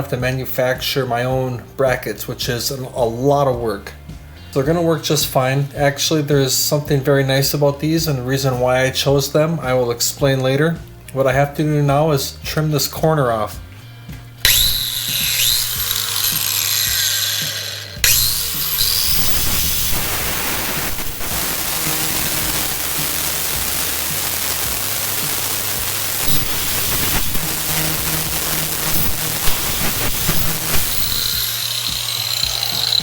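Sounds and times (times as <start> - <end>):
power grinder cutting metal: 14.4 - 33.0.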